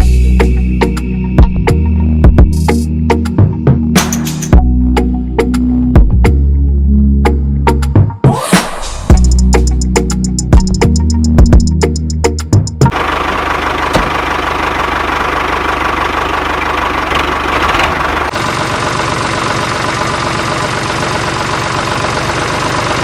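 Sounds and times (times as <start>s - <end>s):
tractor engine running: 9.1s - 23.0s.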